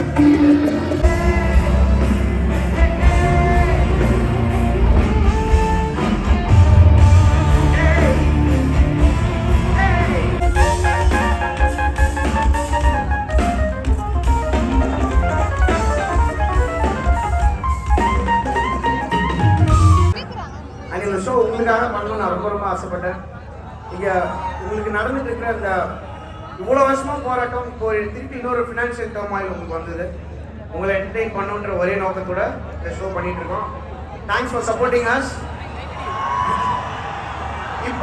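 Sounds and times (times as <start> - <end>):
loud band music with singing: 0.0 - 20.2.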